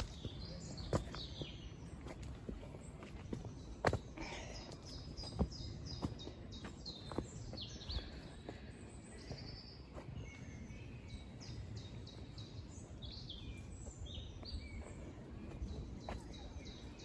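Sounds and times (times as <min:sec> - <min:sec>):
outdoor background noise: 0:00.0 - 0:17.0
songbirds chirping: 0:00.0 - 0:17.0.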